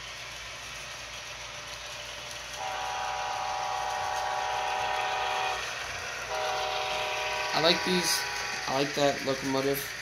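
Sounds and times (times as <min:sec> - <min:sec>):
locomotive air horn chord: 0:02.6 - 0:08.9.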